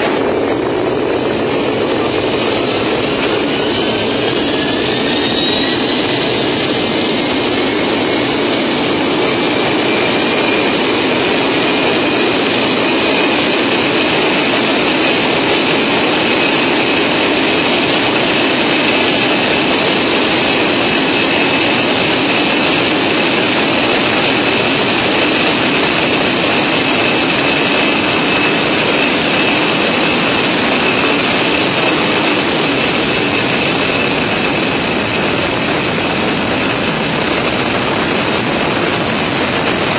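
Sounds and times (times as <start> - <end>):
rush of engine and air noise: 0.0 - 39.9
turbine whine: 0.0 - 39.9.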